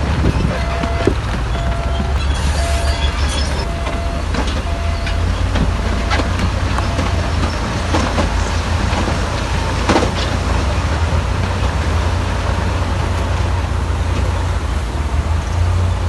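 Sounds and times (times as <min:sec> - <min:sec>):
diesel machine rumbling: 0:00.0 - 0:16.0
reverse alarm beeping: 0:00.5 - 0:07.6.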